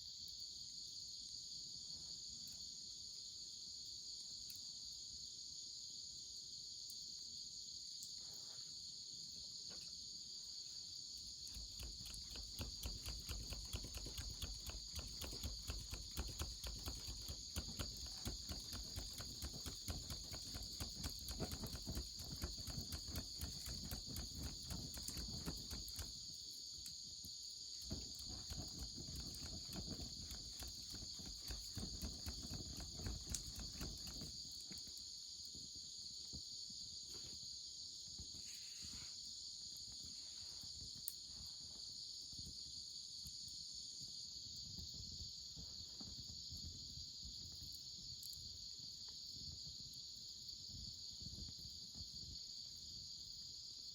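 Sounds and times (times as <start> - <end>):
insects chorus: 0.0 - 53.9
campfire crackling and popping: 11.5 - 26.2, 27.8 - 34.8.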